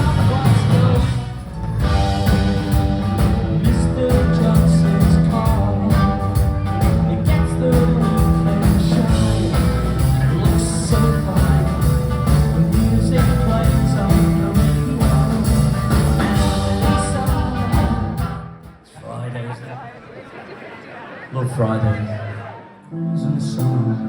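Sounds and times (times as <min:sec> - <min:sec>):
live rock band playing: 0:00.0 - 0:18.8
steady drum beat: 0:00.0 - 0:18.8.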